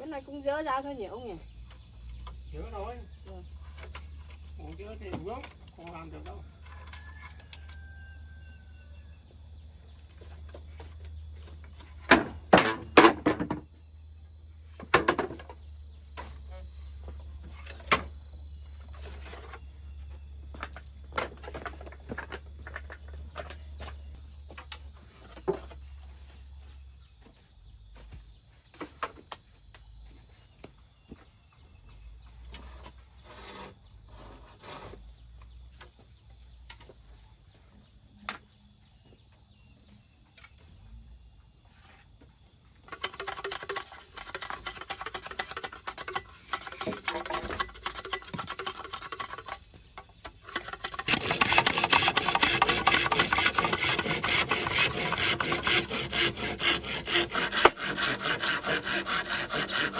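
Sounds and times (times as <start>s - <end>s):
insects chirring: 0.0s - 59.9s
knocks and clatter: 14.8s - 15.6s, 42.9s - 56.8s.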